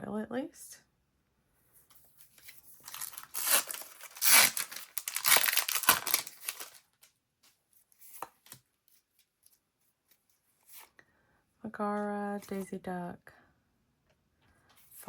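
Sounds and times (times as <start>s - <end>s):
foil wrapper tearing and crinkling: 2.8s - 7.0s.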